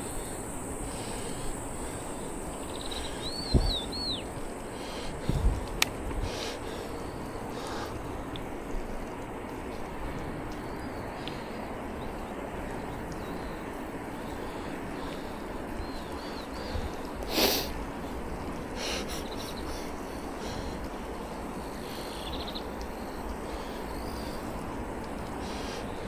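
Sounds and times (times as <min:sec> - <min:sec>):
rushing wind on bicycle ride: 0:00.0 - 0:26.0
faint bird chirps: 0:02.1 - 0:04.4.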